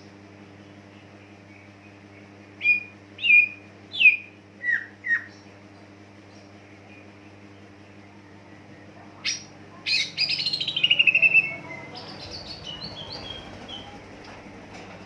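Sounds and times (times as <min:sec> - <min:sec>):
bird singing trills and whistles: 0:00.6 - 0:05.5, 0:09.2 - 0:14.0.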